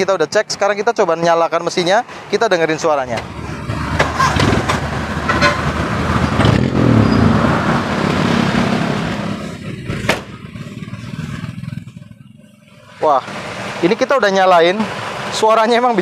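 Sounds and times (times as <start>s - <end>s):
car engine idling: 7.7s - 16.0s.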